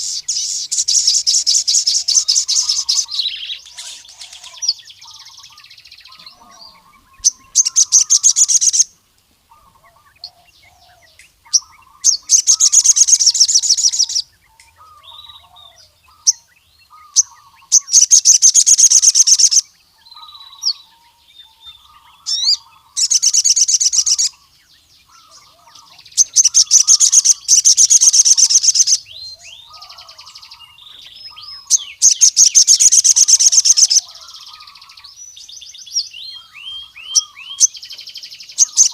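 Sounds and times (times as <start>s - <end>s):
bird rattling trills: 0.0s - 5.5s, 6.1s - 8.9s, 26.1s - 29.0s, 31.6s - 34.7s
bird chirps and twittering: 0.0s - 38.9s.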